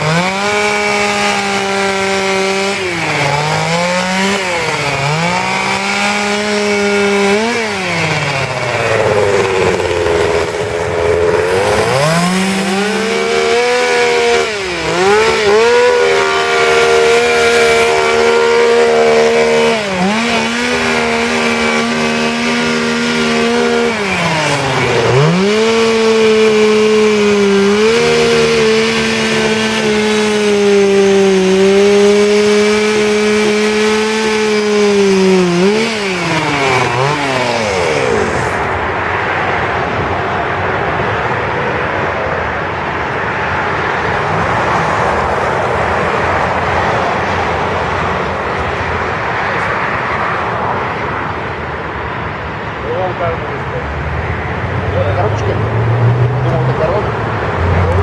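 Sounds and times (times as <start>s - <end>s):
chainsaw cutting wood: 0.0s - 39.1s, 57.6s - 58.0s.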